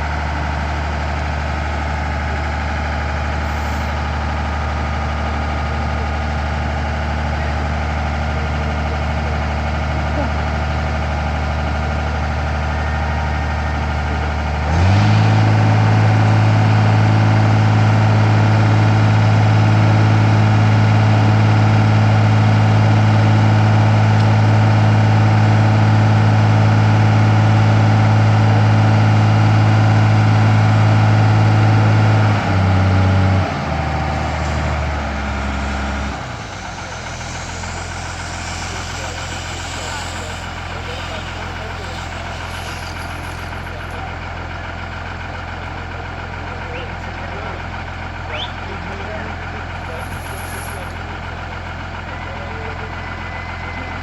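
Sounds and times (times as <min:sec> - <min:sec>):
engine idling and revving: 0:00.0 - 0:54.0.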